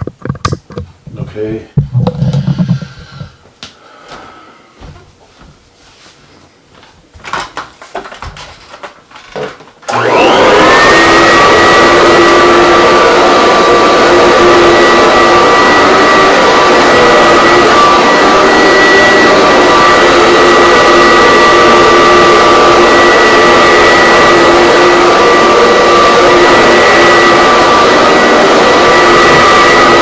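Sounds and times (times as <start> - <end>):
vacuum cleaner running: 7.3 - 30.0.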